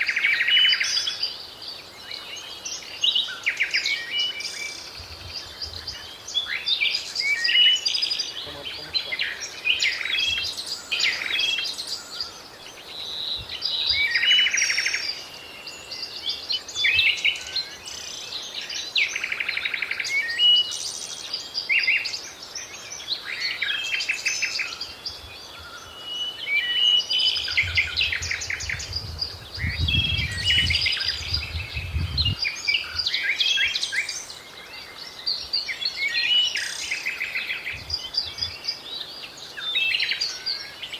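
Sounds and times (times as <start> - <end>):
songbirds chirping and singing: 0.0 - 40.9.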